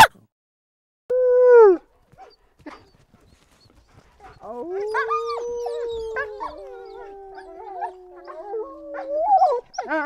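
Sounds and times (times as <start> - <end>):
wolf howling: 4.2 - 10.0.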